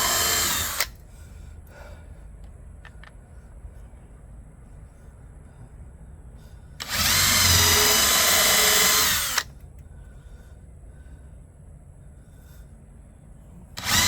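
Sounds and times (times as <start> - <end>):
power drill whining: 0.0 - 0.9, 6.8 - 9.5, 13.8 - 14.0.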